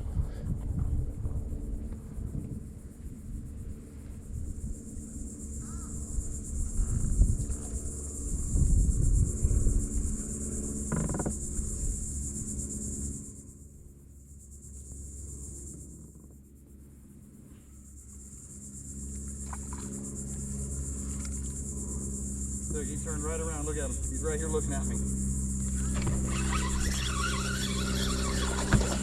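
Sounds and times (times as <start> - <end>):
low rumble: 0.0 - 10.6
insects buzzing: 0.0 - 29.0.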